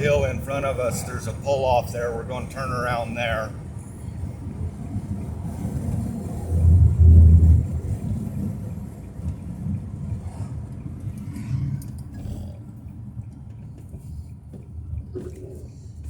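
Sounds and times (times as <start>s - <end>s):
car road and wind noise: 0.0s - 16.0s.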